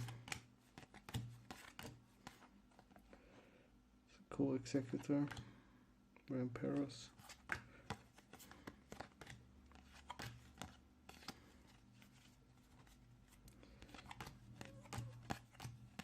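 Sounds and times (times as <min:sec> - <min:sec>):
trading cards clicking and rustling: 0:00.0 - 0:03.0, 0:04.8 - 0:05.5, 0:06.6 - 0:16.0.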